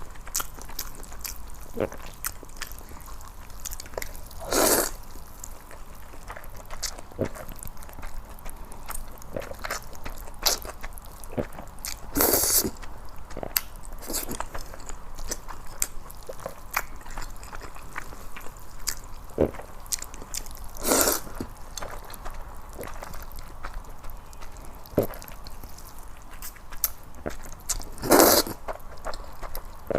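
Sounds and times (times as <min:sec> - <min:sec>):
wet chewing: 0:00.0 - 0:29.9
noodle slurps: 0:04.4 - 0:05.0, 0:20.8 - 0:21.4, 0:28.0 - 0:28.6.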